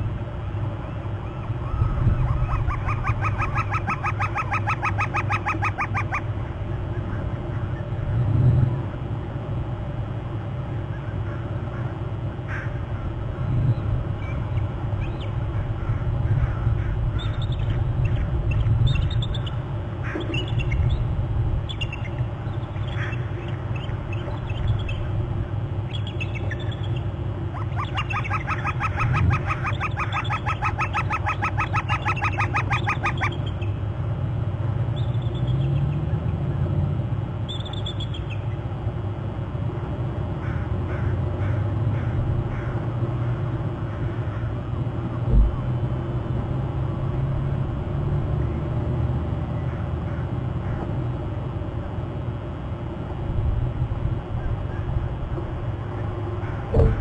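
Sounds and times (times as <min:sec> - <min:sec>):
wind rumble on microphone: 0:01.2 - 0:04.0, 0:45.0 - 0:48.6, 0:53.2 - 0:57.0
eagles chattering calls: 0:01.2 - 0:07.9, 0:25.9 - 0:33.8
faint bird chirps: 0:21.7 - 0:25.1, 0:25.9 - 0:33.8, 0:37.4 - 0:38.6.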